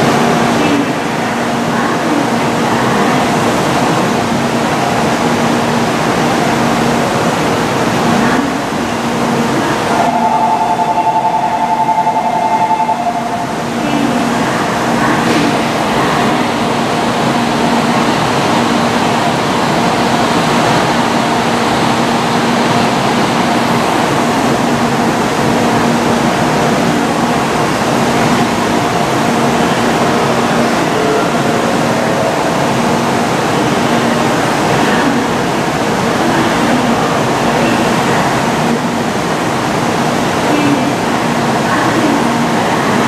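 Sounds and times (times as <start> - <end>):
ventilation fans rushing: 13.6 - 43.0.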